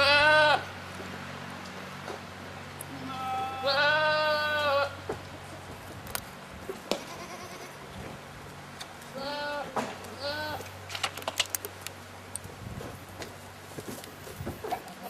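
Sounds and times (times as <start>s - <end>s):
goat bleating: 0.0s - 0.8s, 2.9s - 5.7s, 6.9s - 7.9s, 9.1s - 10.7s.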